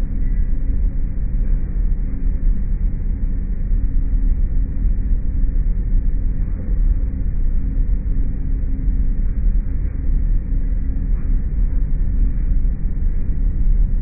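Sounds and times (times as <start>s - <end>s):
low machine drone: 0.0s - 14.0s.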